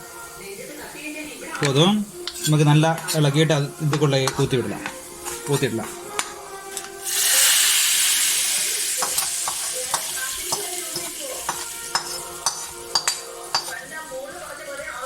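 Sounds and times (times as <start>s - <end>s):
hot oil sizzling: 0.0s - 15.0s
spoon clinking against pot: 1.6s - 3.2s, 3.9s - 5.0s, 9.0s - 13.8s.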